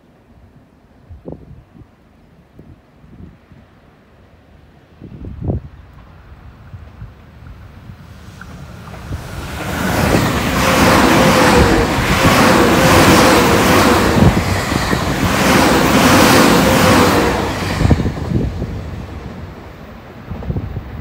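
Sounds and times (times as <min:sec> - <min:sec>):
light wind: 0:00.0 - 0:21.0
train wheels rumbling on rails: 0:05.5 - 0:21.0.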